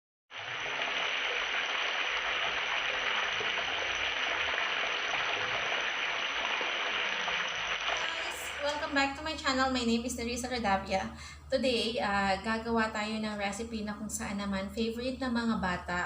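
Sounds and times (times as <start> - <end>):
chicken sizzling in hot oil: 0.3 - 9.2.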